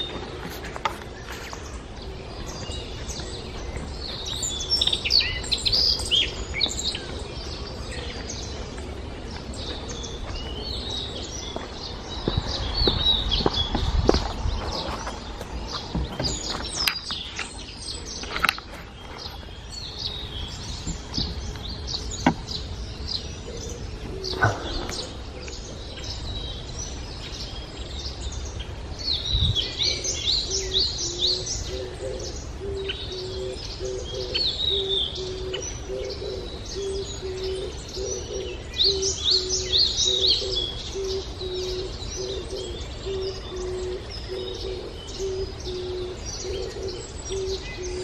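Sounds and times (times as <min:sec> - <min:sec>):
birds singing and chirping: 0:00.0 - 0:48.0
low cooing call: 0:23.3 - 0:26.2, 0:29.7 - 0:48.0.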